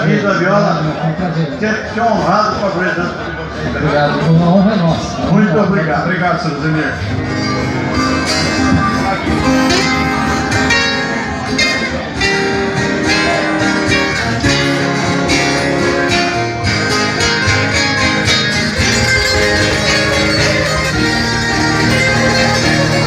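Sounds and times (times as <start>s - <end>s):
strummed and plucked guitars: 7.0s - 23.0s
viola caipira playing: 7.2s - 23.0s.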